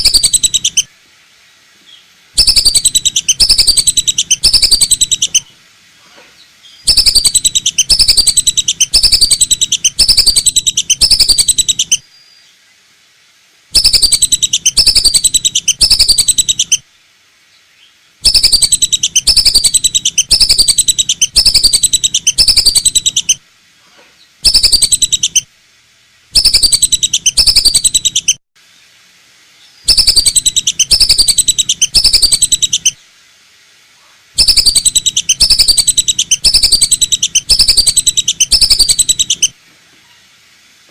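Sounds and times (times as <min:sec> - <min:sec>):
whistling duck calls: 0:34.4 - 0:39.5.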